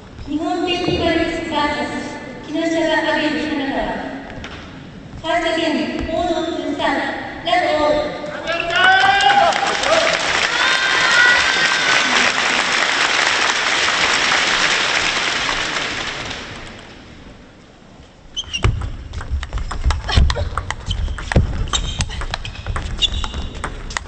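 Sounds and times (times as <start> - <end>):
crowd applause: 8.5 - 16.9.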